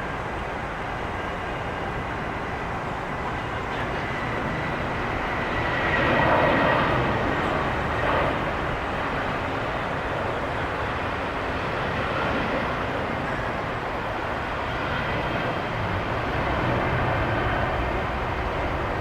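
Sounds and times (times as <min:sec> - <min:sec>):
jet airliner engines passing: 0:00.0 - 0:19.0.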